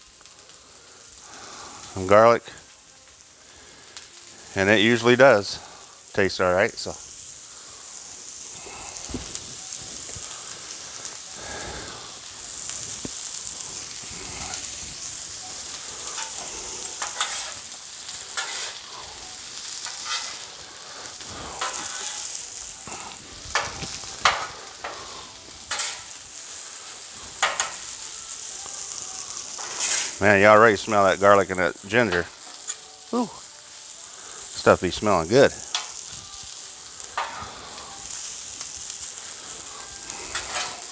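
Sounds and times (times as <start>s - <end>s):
food sizzling on a griddle: 0.0s - 40.9s
spatula scraping metal griddle: 7.3s - 32.9s, 34.4s - 40.9s.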